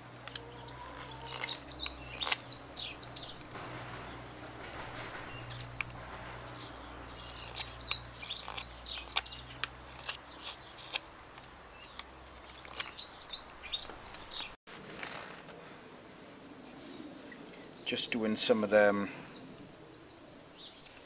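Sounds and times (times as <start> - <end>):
bird singing high chirps: 0.5 - 4.2, 6.6 - 9.6, 12.6 - 14.6
knife carving dry wood clicks: 8.4 - 13.0.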